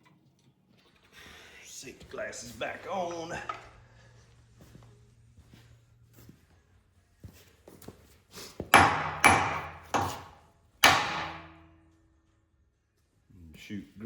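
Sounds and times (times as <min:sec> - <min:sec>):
hammer striking metal bolt: 0:08.8 - 0:11.8.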